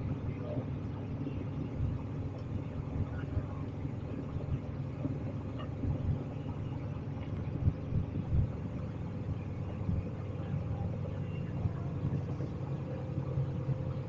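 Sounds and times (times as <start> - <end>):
low rumble of moving vehicle: 0.0 - 14.0
soft low thumps: 4.6 - 10.2.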